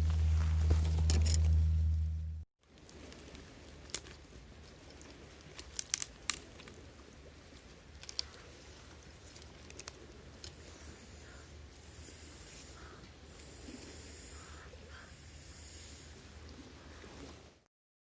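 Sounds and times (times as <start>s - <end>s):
faint low rumble: 0.0s - 5.0s
dry wood snapping: 5.4s - 6.8s, 7.9s - 8.4s, 9.3s - 10.6s.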